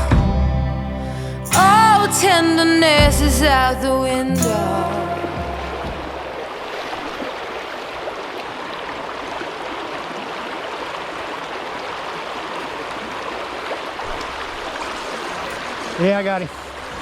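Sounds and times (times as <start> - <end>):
creek water flowing: 1.4 - 17.0.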